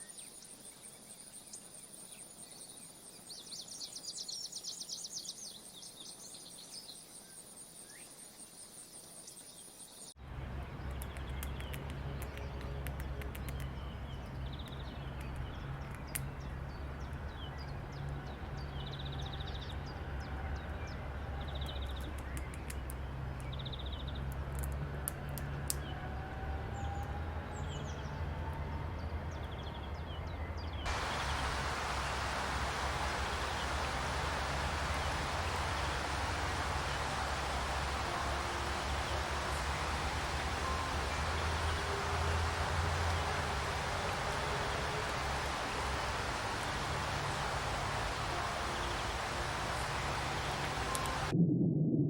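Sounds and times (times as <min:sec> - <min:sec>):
birds chirping and trilling: 0:00.0 - 0:24.8, 0:29.0 - 0:51.3
loud steady hiss: 0:30.9 - 0:51.3
low rumble: 0:47.8 - 0:52.0.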